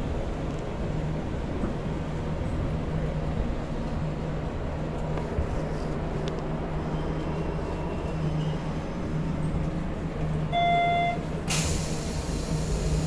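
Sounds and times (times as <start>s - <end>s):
train equipment hum: 0.0s - 13.0s
short electronic beep: 10.6s - 11.2s
air hiss: 11.5s - 13.0s.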